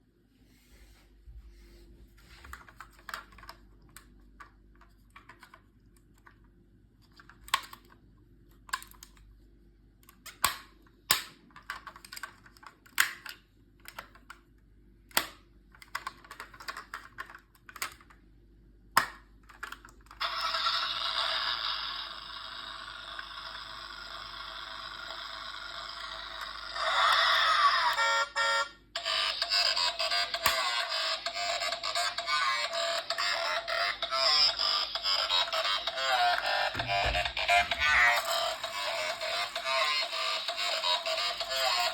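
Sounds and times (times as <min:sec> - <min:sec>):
plastic toy clicks and taps: 0:10.1 - 0:14.4, 0:15.1 - 0:18.1.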